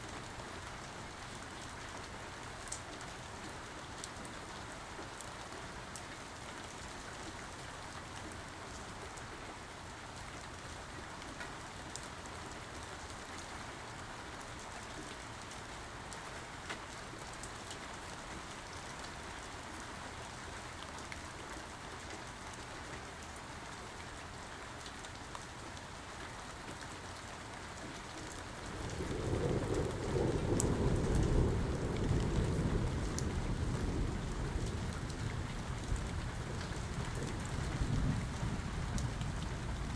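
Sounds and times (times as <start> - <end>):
steady rain falling: 0.0 - 39.9
low rumble of thunder: 28.5 - 39.9.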